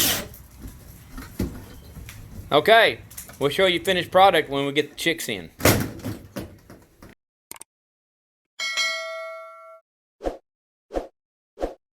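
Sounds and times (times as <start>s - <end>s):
bell-like ding: 8.6s - 9.8s.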